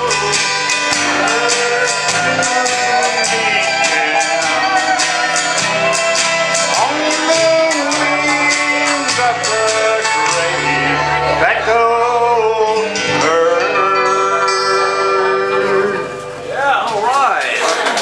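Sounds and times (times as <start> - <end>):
man singing country song: 0.0 - 16.2
strummed guitar: 0.0 - 17.0.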